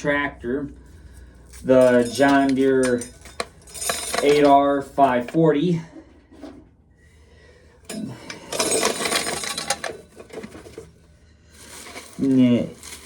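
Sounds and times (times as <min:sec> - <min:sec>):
corn kernels rattling into a pail: 0:08.5 - 0:10.9, 0:11.6 - 0:13.0.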